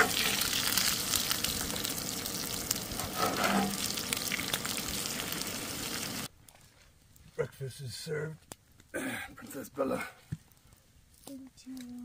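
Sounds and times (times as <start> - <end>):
food sizzling in a skillet: 0.0 - 6.3
metal spatula scraping pan: 3.0 - 3.9.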